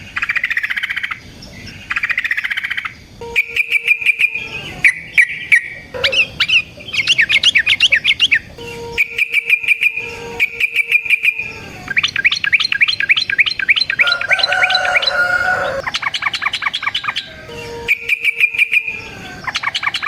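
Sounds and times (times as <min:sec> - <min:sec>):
bulbul singing: 0:00.0 - 0:20.0.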